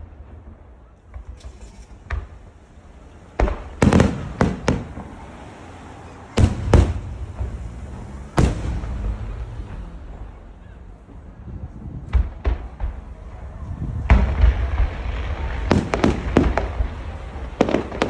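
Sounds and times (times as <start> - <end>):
firework shells bursting: 1.1 - 10.4, 14.0 - 18.0.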